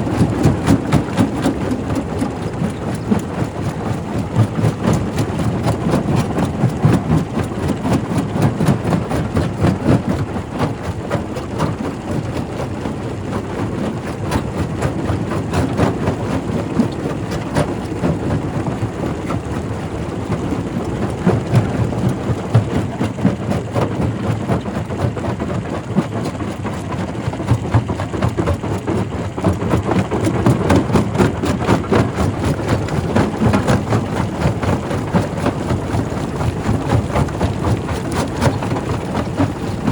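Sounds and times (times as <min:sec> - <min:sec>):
rock crusher rumbling: 0:27.5 - 0:39.9.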